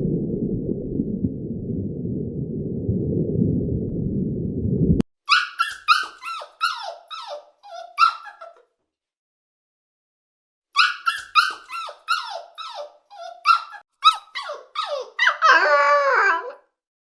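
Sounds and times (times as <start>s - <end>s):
low rumbling noise: 0.0s - 5.0s.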